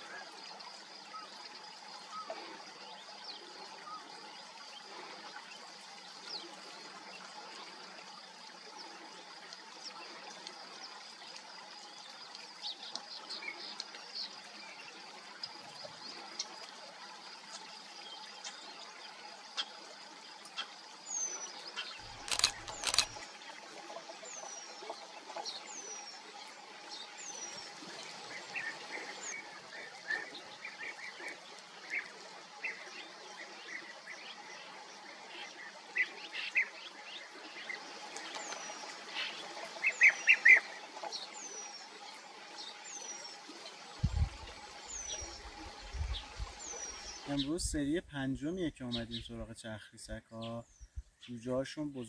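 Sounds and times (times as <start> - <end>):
sharp clicks: 22.1 - 23.2.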